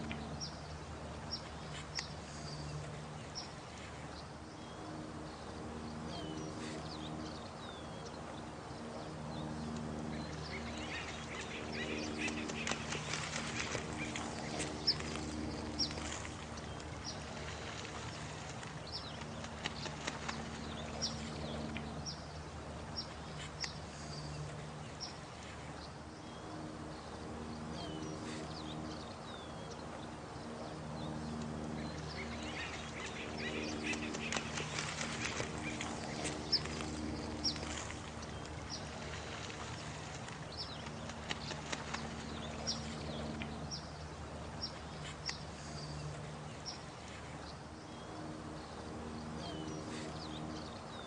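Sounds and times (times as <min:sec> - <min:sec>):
birds chirping: 0:00.0 - 0:51.0
low steady hum: 0:00.0 - 0:51.0
running water: 0:00.0 - 0:51.0
small birds chirping: 0:30.4 - 0:48.3.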